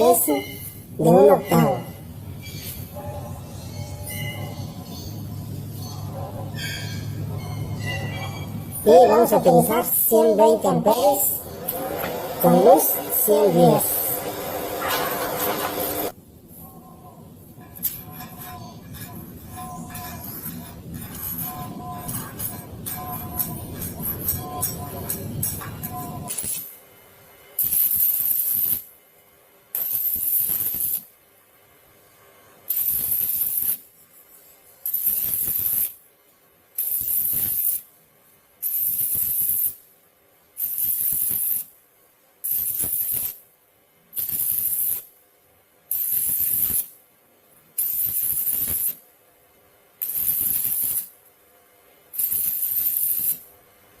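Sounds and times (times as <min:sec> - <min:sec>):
welding arc crackling and hissing: 0:08.8 - 0:16.2, 0:17.4 - 0:29.0, 0:29.7 - 0:31.2, 0:32.4 - 0:36.1, 0:36.7 - 0:41.8, 0:42.4 - 0:45.2, 0:45.8 - 0:47.0, 0:47.6 - 0:49.1, 0:50.0 - 0:51.3, 0:52.1 - 0:54.0.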